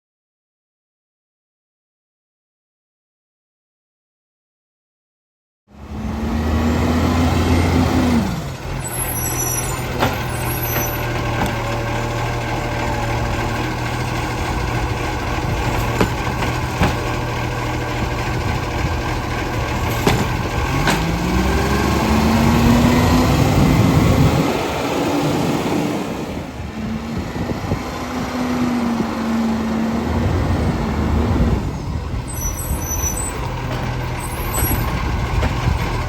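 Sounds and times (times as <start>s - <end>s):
diesel engine revving and idling: 5.7s - 36.0s
high squeal: 8.8s - 11.2s, 32.2s - 33.5s, 34.2s - 35.0s
sharp knocks: 15.8s - 17.1s, 19.9s - 21.1s.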